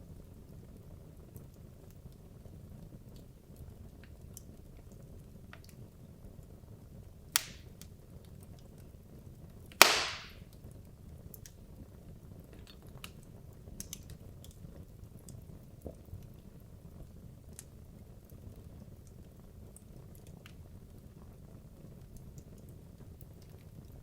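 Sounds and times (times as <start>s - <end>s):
fireplace flames rumbling: 0.0s - 24.0s
log popping with hiss: 7.4s - 7.7s, 9.8s - 10.4s
wood crackling: 7.4s - 7.9s, 9.8s - 10.4s.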